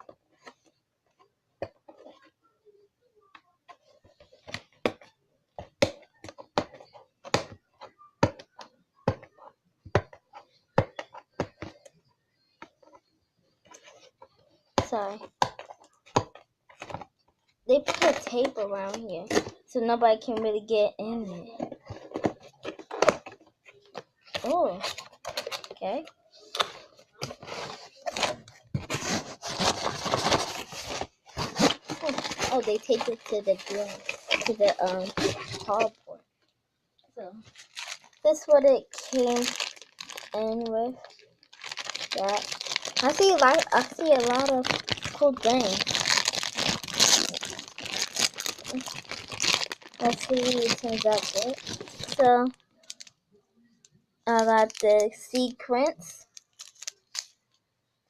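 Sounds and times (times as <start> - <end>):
hands handling packaging: 21.6 - 36.0, 37.4 - 53.2, 54.3 - 57.4.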